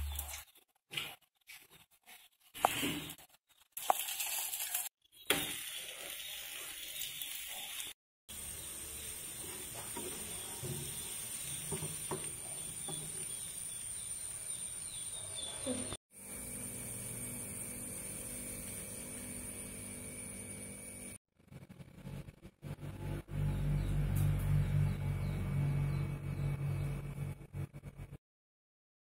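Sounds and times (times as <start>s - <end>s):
fat sizzling in a pan: 3.8s - 15.1s, 16.2s - 21.2s.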